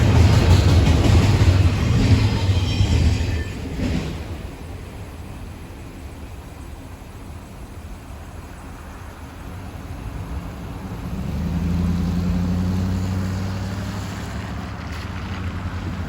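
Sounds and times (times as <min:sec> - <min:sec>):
vehicle engine passing by: 0:09.9 - 0:16.0.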